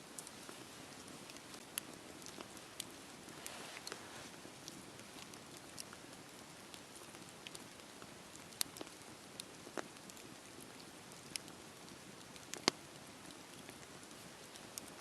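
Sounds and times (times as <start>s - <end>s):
wood fire crackling and popping: 0.0s - 15.0s
fire hissing: 2.3s - 4.5s.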